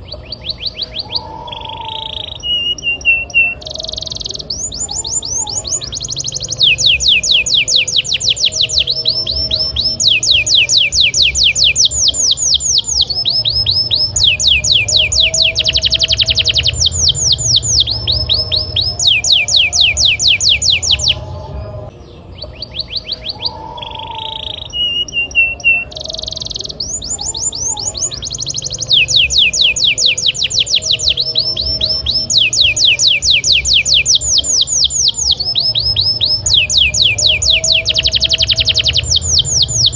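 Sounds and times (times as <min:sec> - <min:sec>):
canary singing: 0:00.0 - 0:39.9
faint low rumble: 0:07.9 - 0:23.4.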